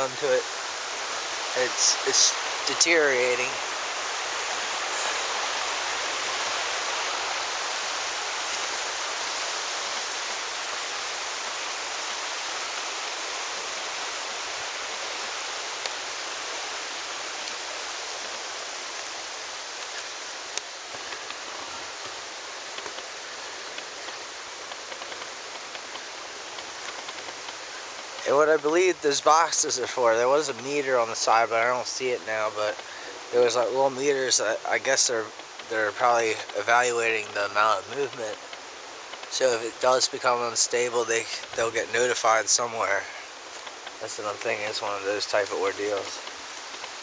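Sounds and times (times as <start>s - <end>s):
water rushing over rocks: 0.0s - 47.0s
faint sharp clicks: 15.8s - 16.0s, 17.4s - 17.6s, 19.8s - 21.4s, 23.7s - 28.7s.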